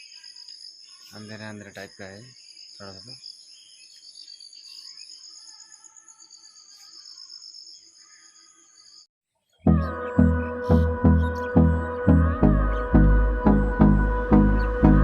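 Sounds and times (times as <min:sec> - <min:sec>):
crickets and insects chirping: 0:00.0 - 0:09.1.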